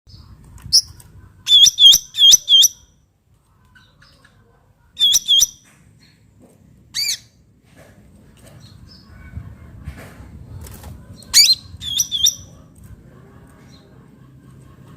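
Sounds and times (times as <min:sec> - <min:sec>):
songbird calling sharp notes: 0:05.0 - 0:05.6.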